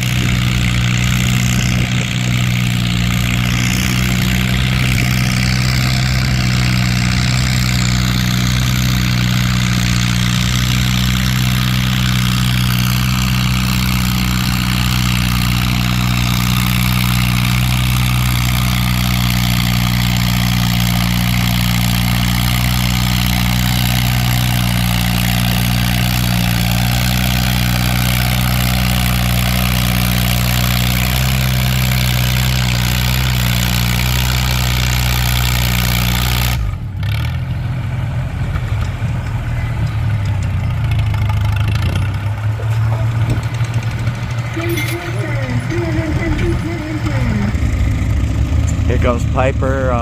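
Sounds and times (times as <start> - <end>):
tractor engine running: 0.0 - 50.0.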